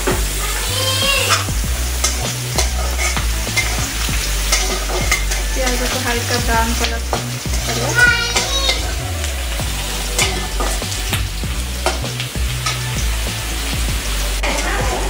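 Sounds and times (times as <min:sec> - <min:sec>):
food sizzling in hot oil: 0:00.0 - 0:15.0
spatula scraping a metal pan: 0:01.2 - 0:11.0.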